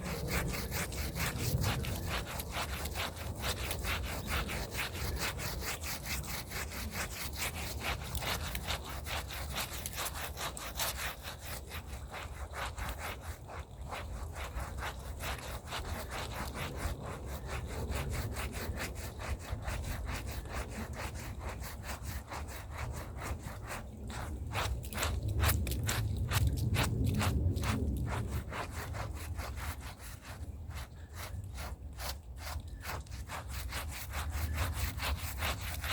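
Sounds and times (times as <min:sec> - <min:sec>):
hand brush scrubbing a rug: 0:00.0 - 0:35.9.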